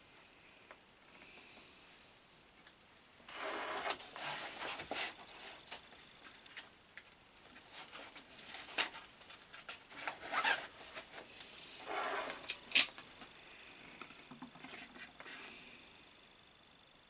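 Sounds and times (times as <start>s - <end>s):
rustling and scraping: 3.3s - 6.8s, 7.4s - 15.4s.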